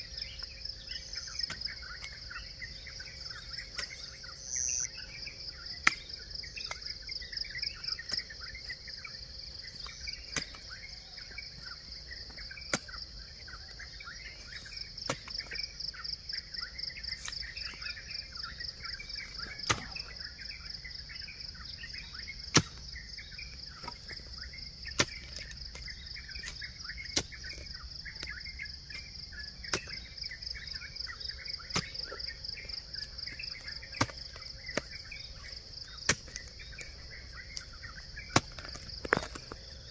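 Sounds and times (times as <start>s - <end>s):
birds chirping: 0.0s - 39.9s
high insect trill: 0.0s - 39.9s
hoe chopping into soil: 12.7s - 13.0s, 19.4s - 20.1s, 22.5s - 22.8s, 24.9s - 28.3s, 28.9s - 30.1s, 31.7s - 32.2s, 34.0s - 35.0s, 36.0s - 36.8s, 37.5s - 39.6s.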